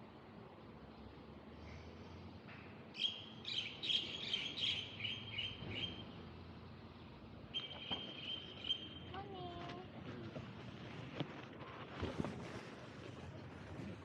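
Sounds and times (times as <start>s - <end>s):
bird chirping: 3.0s - 6.1s, 7.5s - 9.2s.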